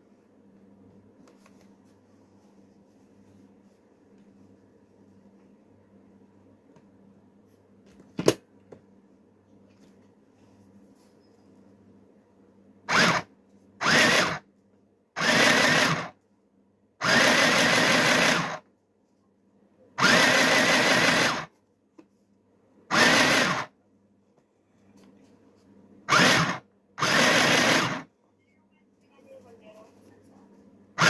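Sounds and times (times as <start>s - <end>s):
sewing machine stitching: 12.9s - 14.4s, 15.2s - 16.2s, 17.0s - 18.6s, 20.0s - 21.5s, 22.9s - 23.7s, 26.1s - 28.1s.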